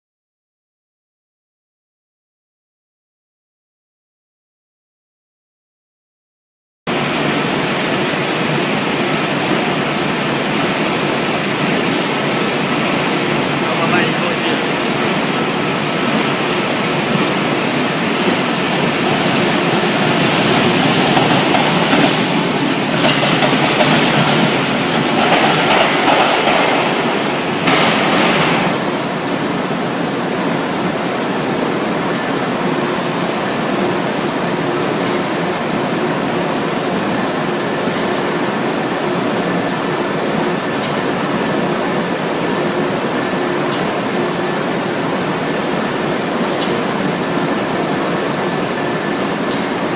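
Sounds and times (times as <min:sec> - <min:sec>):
rushing noise: 0:06.9 - 0:30.9
high-pitched furnace whine: 0:06.9 - 0:49.9
loud machine noise: 0:06.9 - 0:49.9.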